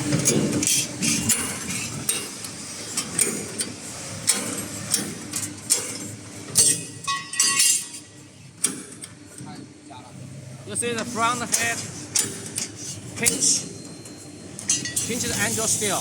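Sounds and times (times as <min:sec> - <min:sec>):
steady machine noise: 0:00.0 - 0:16.0
sharp metallic clanks and clicks: 0:00.2 - 0:02.4, 0:06.6 - 0:08.0, 0:11.4 - 0:15.5.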